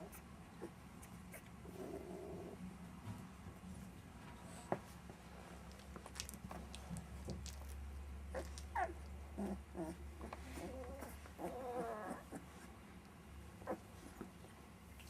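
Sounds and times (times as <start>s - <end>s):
puppies whimpering and whining: 8.3s - 12.7s, 13.6s - 14.4s.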